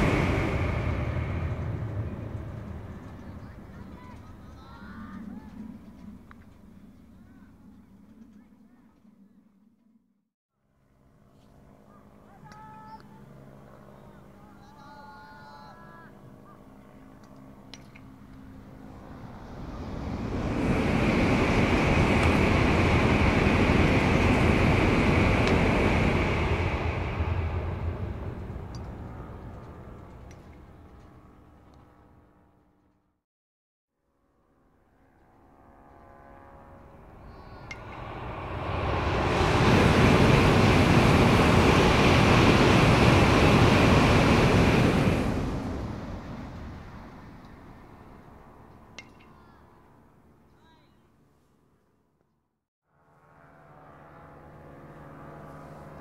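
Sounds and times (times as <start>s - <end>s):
high-speed train rushing: 0.0s - 6.2s, 18.5s - 30.8s, 36.2s - 49.1s.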